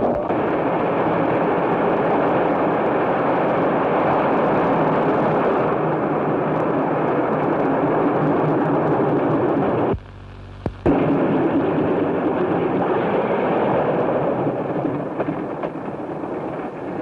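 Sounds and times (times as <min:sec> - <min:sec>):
propeller airplane engine drone: 0:00.0 - 0:17.0
recording hiss: 0:09.8 - 0:12.1.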